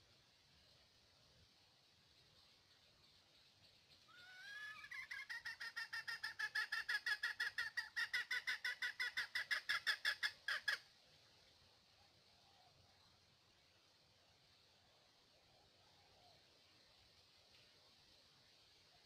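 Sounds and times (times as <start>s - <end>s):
bird calling in fast clear notes: 2.4s - 10.9s.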